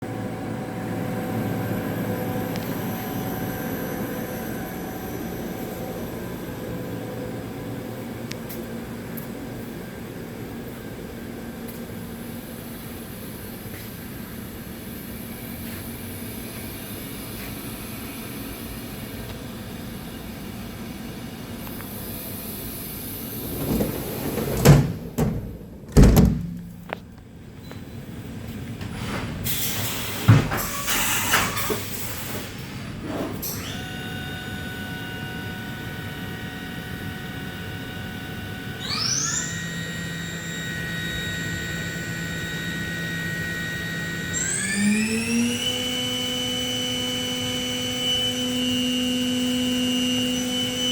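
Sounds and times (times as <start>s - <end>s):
machine humming: 23.0s - 27.0s
loud clunks and knocks: 23.3s - 27.1s.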